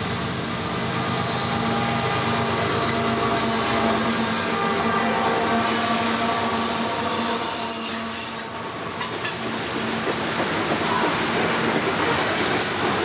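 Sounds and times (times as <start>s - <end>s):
train wheels clattering on rails: 7.6s - 13.0s.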